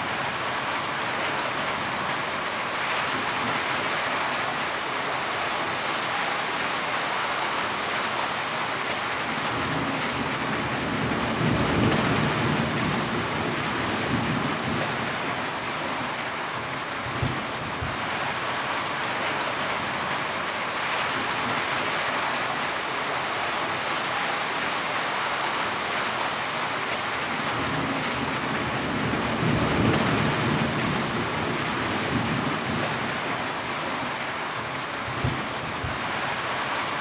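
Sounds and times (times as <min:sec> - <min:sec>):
heavy rain falling: 0:00.0 - 0:37.0.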